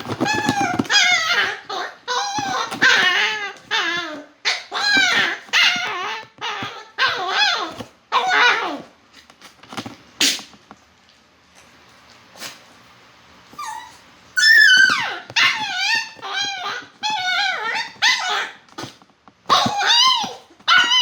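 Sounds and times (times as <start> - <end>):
dog whining and yelping: 0.0 - 8.8, 13.5 - 21.0.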